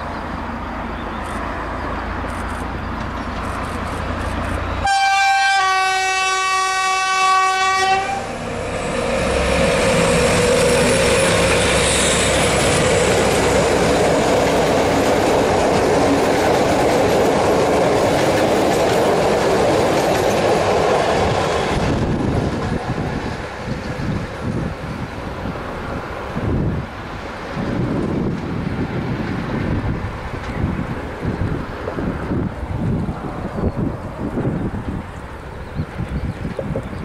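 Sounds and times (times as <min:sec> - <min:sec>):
train rushing past: 0:00.0 - 0:37.0
locomotive horn: 0:04.8 - 0:08.5.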